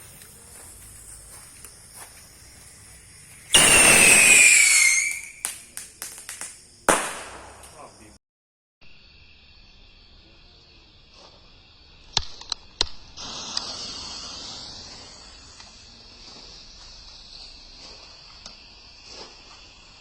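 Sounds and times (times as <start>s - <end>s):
firework high hiss: 0.0s - 8.2s, 8.9s - 20.0s
firework bangs: 1.0s - 8.2s, 12.0s - 20.0s
faint firework pops: 3.3s - 8.1s, 12.0s - 13.8s.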